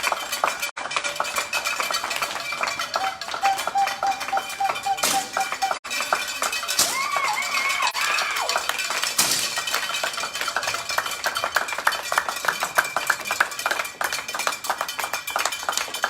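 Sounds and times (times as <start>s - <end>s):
light clicks and clinks: 5.9s - 16.0s.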